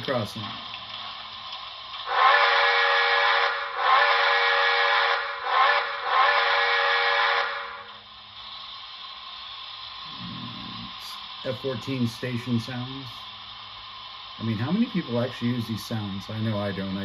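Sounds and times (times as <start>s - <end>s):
steady background hiss: 0.0s - 17.0s
steam locomotive chime whistle: 2.1s - 7.9s.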